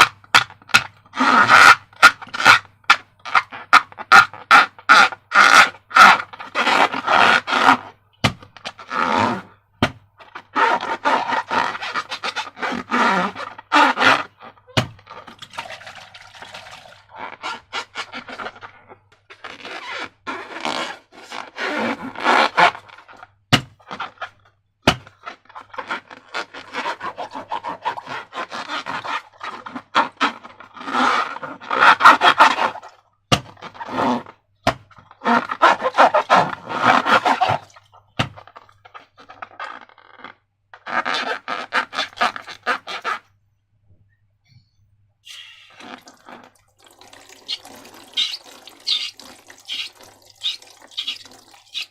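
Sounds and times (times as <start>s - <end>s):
slime scraping and squishing: 47.4s - 51.9s.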